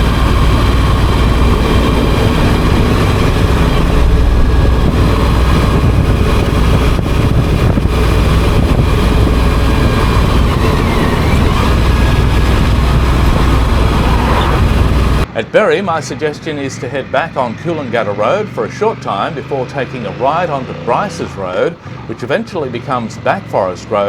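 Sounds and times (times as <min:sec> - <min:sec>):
motorcycle engine running: 0:00.0 - 0:15.3
wind rushing over microphone: 0:00.0 - 0:15.3.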